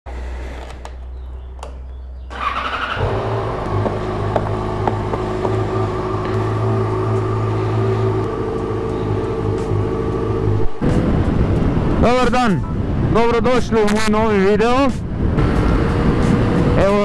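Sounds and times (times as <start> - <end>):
motorcycle engine idling: 1.1 - 10.4
motorcycle starter cranking: 2.3 - 3.4.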